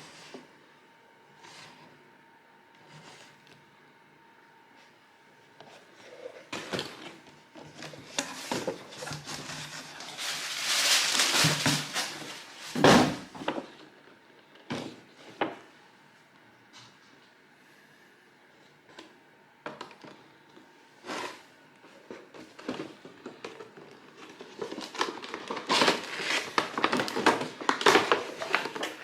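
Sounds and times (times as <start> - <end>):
packaging rustling: 5.9 - 13.6, 22.0 - 29.0
thump and knocks on box: 12.8 - 13.4.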